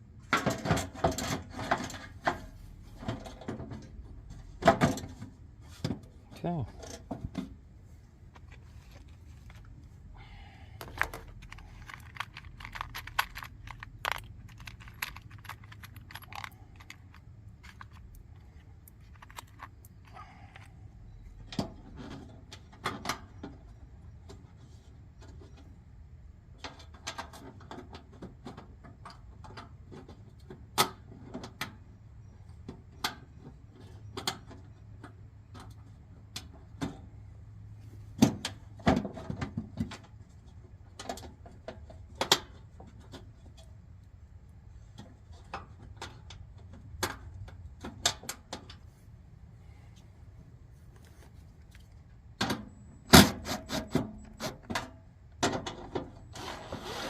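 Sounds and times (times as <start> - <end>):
tools clicking and clattering: 10.8 - 20.7.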